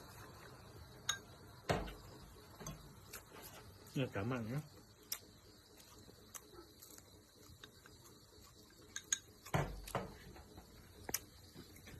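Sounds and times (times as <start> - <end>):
thump: 1.7 - 2.0.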